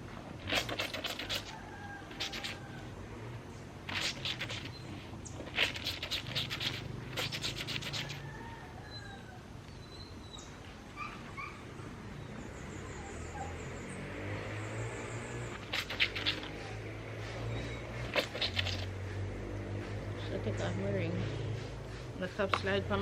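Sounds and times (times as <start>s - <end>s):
laundry scrubbed by hand: 0.4s - 2.7s, 3.8s - 4.8s, 5.4s - 8.2s, 15.3s - 19.2s
faint bird chirps: 8.8s - 14.0s.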